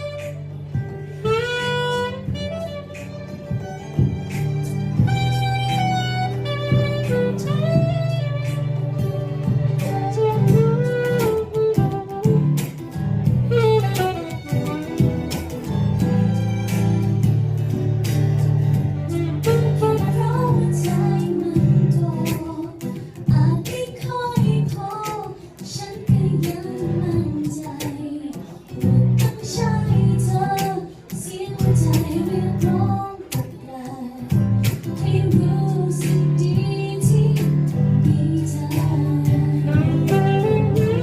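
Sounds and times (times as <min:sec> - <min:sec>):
guitar: 0:00.0 - 0:41.0
high voice singing: 0:34.8 - 0:41.0.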